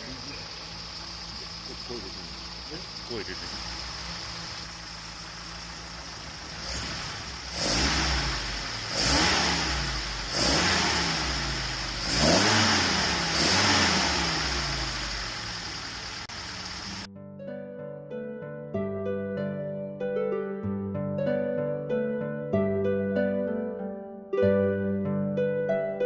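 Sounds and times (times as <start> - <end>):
car engine idling and revving: 0.0 - 17.1
plucked harp music: 17.2 - 26.0.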